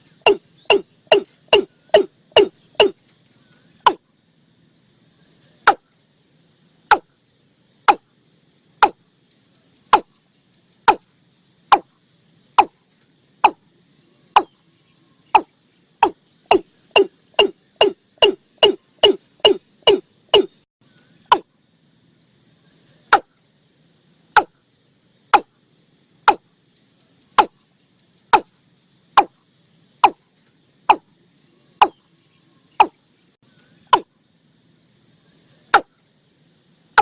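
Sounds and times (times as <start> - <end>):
faint insects buzzing: 0.0 - 37.0
bird calling sharp notes: 0.2 - 3.0, 15.4 - 20.6.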